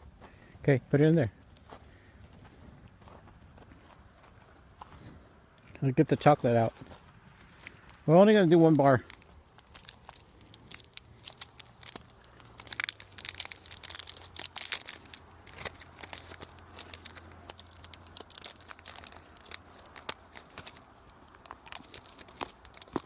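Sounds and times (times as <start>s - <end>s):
wrapper tearing and crinkling: 7.4s - 23.0s.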